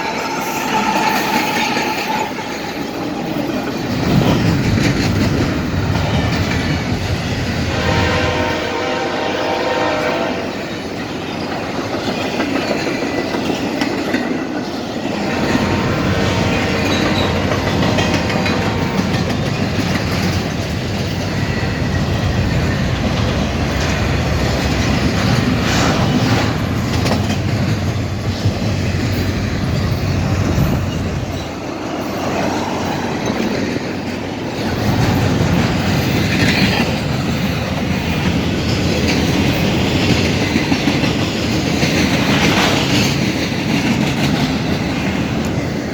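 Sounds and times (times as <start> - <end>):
train wheels clattering over rail joints: 0.0 - 8.4, 10.5 - 45.9.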